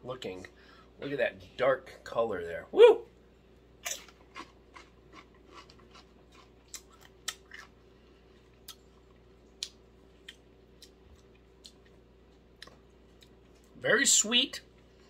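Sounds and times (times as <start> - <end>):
person chewing crisp chip: 3.8 - 13.4.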